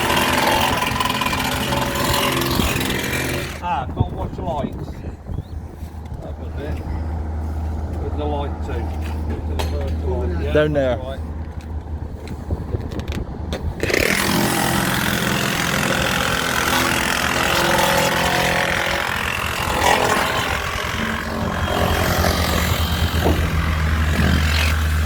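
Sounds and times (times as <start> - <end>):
engine running: 0.0 - 3.6, 13.7 - 25.0.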